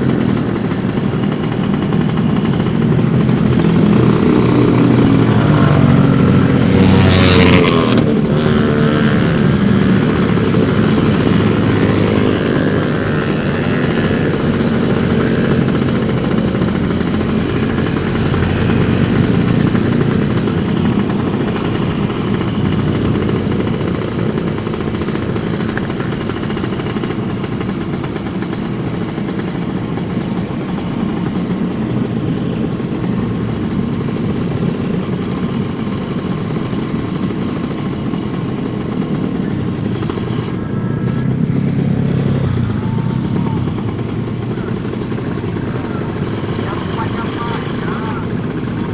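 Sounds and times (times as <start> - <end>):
two-stroke motorcycle engine running: 0.0 - 48.9.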